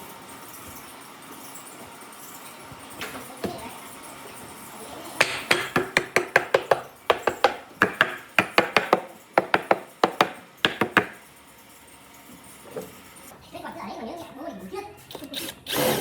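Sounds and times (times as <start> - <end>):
sharp knocks on wood: 5.2 - 11.2.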